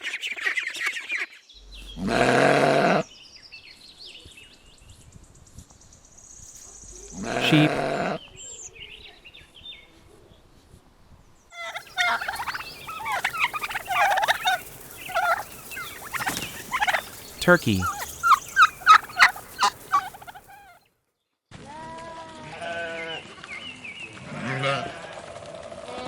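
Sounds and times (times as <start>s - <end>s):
turkeys gobbling: 11.6s - 20.8s.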